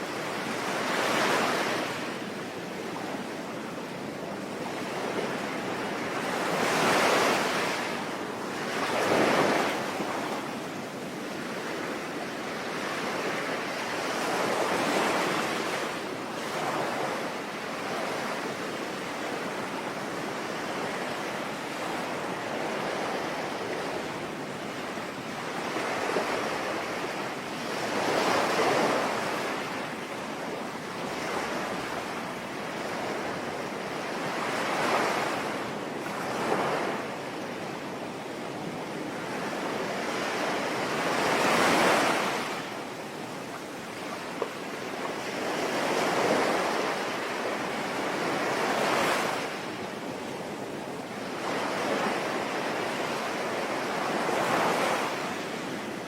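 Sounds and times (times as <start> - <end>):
ocean waves breaking: 38.6 - 56.0.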